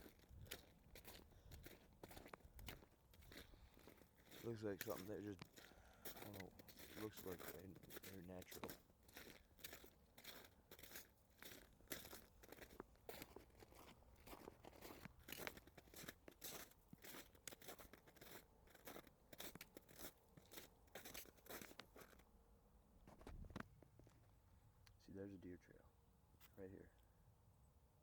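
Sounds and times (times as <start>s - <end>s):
footsteps crunching in snow: 0.0s - 22.2s.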